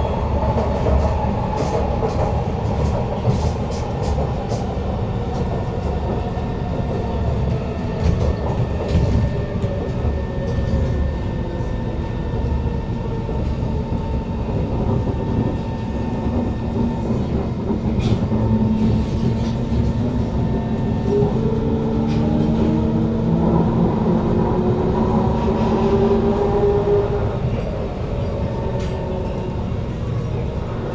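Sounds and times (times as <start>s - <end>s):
wheel and track rumble: 0.0s - 30.9s.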